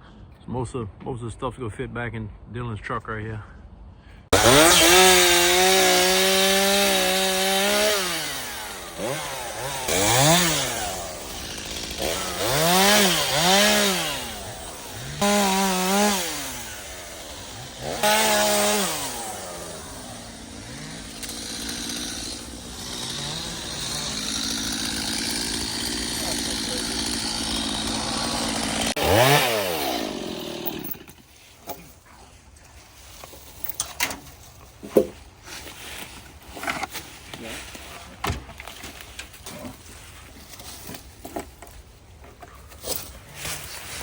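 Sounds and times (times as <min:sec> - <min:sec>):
chainsaw engine revving: 0:04.3 - 0:31.1
chainsaw idling: 0:04.4 - 0:31.2.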